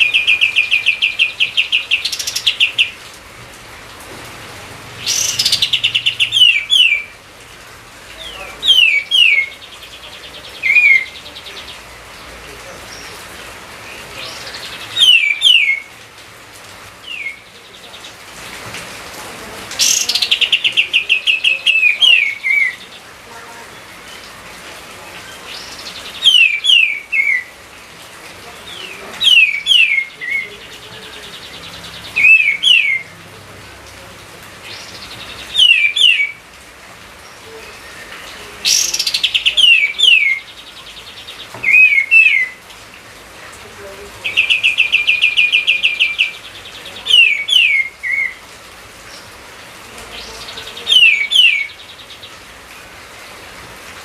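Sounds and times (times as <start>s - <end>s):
songbird whistling phrases: 5.0s - 7.1s, 8.3s - 11.8s, 14.3s - 15.9s, 17.1s - 17.5s, 19.8s - 22.9s, 25.5s - 27.5s, 28.7s - 30.7s, 32.1s - 33.1s, 34.7s - 36.4s, 37.6s - 40.5s, 41.6s - 42.6s, 44.3s - 48.4s, 50.2s - 51.8s.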